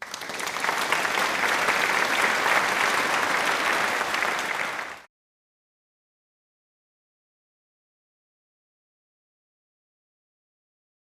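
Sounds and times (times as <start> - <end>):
crowd applauding: 0.0 - 5.1.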